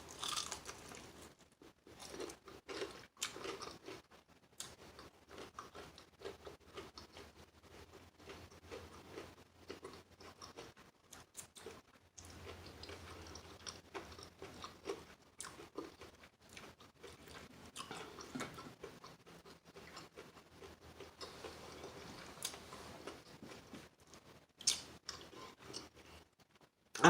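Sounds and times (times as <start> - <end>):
person chewing crunchy food: 0.0 - 26.3.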